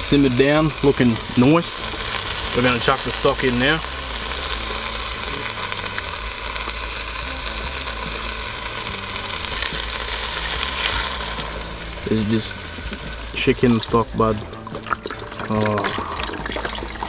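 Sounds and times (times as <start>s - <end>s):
onions sizzling in a pot: 0.0s - 17.0s.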